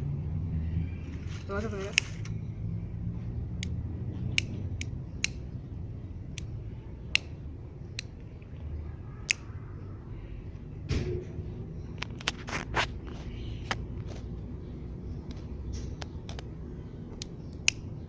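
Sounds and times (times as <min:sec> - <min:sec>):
low rumble of wind: 0:00.0 - 0:18.0
lighter clicking: 0:04.3 - 0:05.4.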